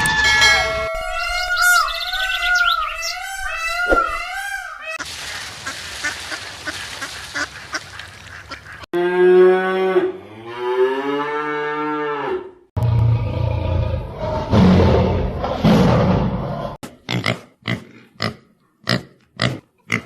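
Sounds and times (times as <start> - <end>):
farm animal calls: 1.0 - 5.0.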